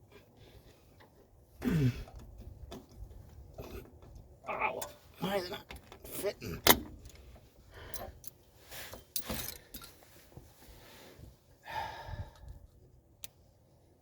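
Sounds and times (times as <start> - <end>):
brake parts clicking and scraping: 2.0 - 10.5
heavy breath: 10.8 - 12.6.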